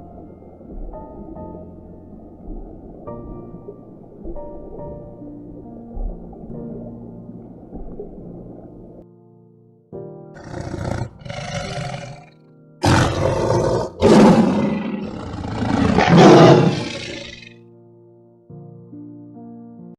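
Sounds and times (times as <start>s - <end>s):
soft background music: 0.0s - 19.9s
large animal calling: 10.4s - 17.5s.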